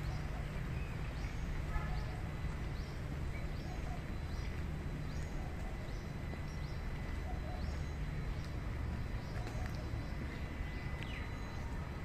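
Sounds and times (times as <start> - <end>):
rain on pavement: 0.0 - 7.1, 7.7 - 12.0.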